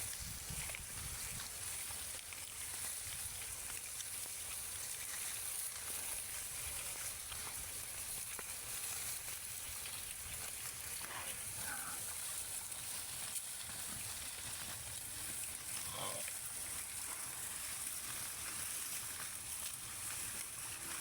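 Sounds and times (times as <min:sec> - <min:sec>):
crackling hiss: 0:06.8 - 0:21.0.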